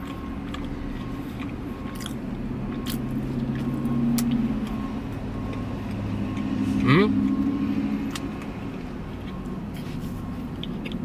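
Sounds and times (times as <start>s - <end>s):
car engine humming: 0.0s - 11.0s
chewing soft bread: 0.0s - 11.0s.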